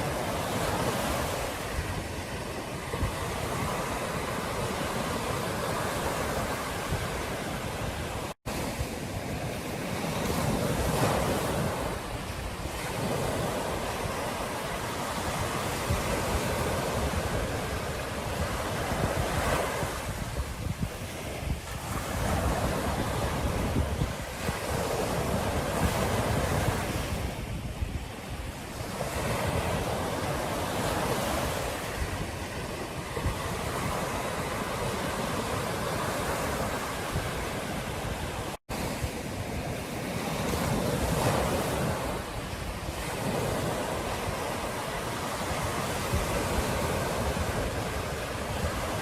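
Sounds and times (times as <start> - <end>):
ocean surf breaking: 0.0 - 49.0
wind rumbling on microphone: 0.0 - 49.0.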